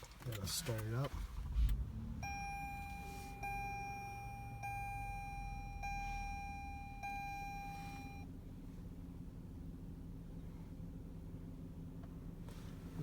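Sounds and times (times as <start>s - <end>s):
car engine idling: 0.0s - 13.0s
car dashboard chime: 1.8s - 8.3s.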